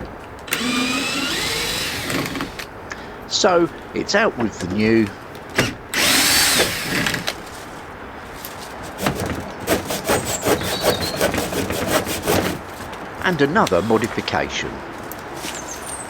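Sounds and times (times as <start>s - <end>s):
hand saw cutting wood: 0.0s - 2.7s, 5.6s - 7.6s, 8.7s - 12.8s
power drill running: 0.0s - 2.7s, 5.5s - 7.5s.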